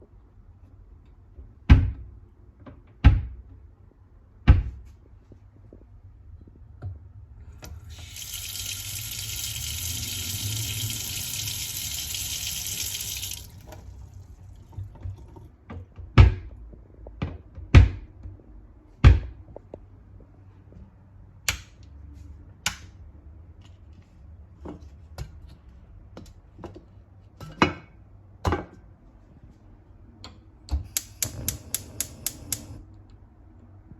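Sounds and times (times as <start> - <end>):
water running: 7.7 - 14.8.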